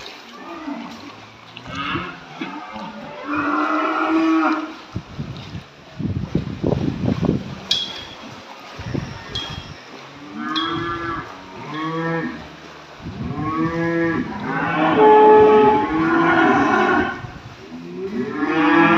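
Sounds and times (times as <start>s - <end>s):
cattle mooing: 0.4s - 4.7s, 10.2s - 12.4s, 13.2s - 18.9s.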